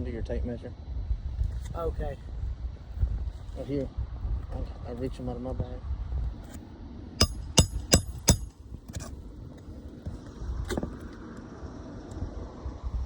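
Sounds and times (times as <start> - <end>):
hammer ringing on metal: 7.2 - 8.5.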